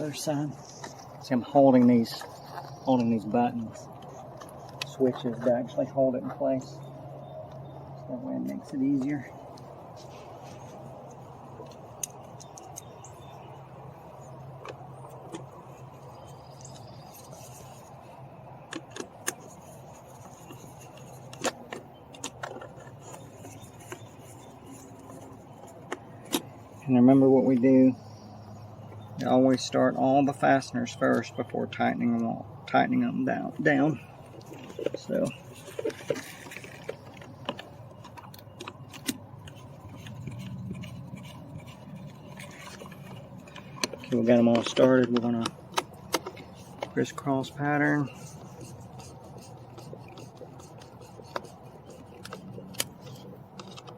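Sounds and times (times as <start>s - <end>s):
low steady hum: 0.0s - 53.9s
plastic parts clicking and rattling: 18.7s - 26.6s, 34.2s - 53.9s.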